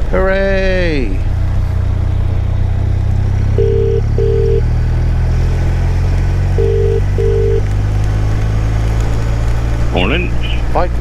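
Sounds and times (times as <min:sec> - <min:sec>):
motorcycle low drone: 0:00.0 - 0:11.0
telephone ringing double beeps: 0:03.6 - 0:04.7, 0:06.6 - 0:07.6.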